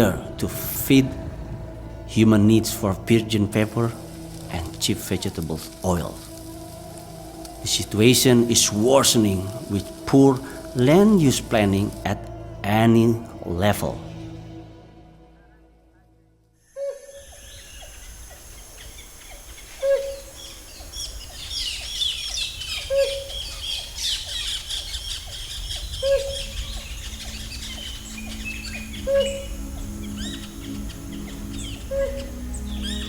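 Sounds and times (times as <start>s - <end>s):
chorus of chirping birds: 0.0s - 14.2s, 17.1s - 33.0s
hornbill hooting: 16.8s - 33.0s.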